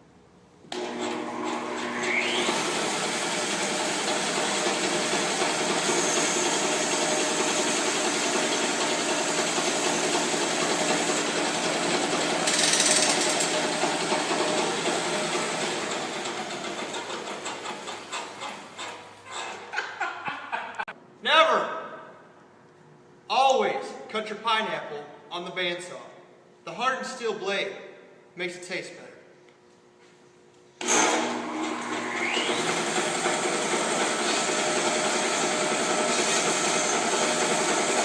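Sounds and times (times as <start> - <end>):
bandsaw mill running: 0.7 - 19.7, 30.8 - 38.0.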